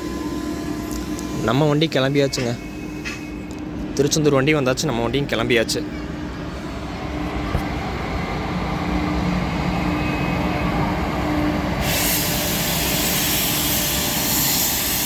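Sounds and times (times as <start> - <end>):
train low rumble: 0.0 - 15.0
loud rushing hiss: 11.7 - 15.0.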